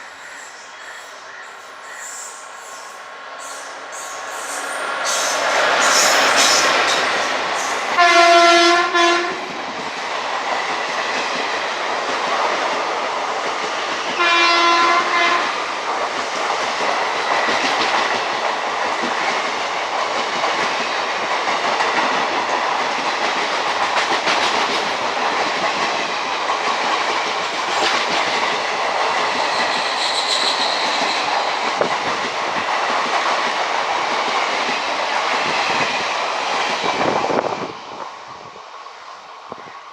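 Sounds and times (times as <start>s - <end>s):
train horn: 7.9s - 9.4s, 14.2s - 15.6s
train wheels clattering over rail joints: 15.9s - 37.2s.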